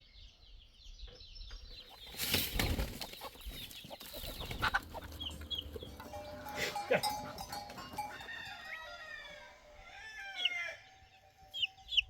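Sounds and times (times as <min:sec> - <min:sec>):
chickens clucking: 0:01.7 - 0:10.8.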